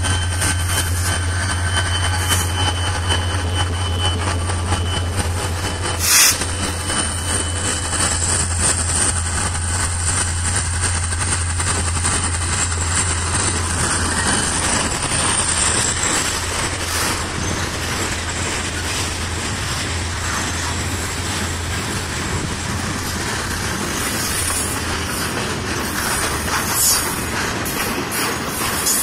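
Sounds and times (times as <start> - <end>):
freight cars rolling on rails: 0.0 - 29.0.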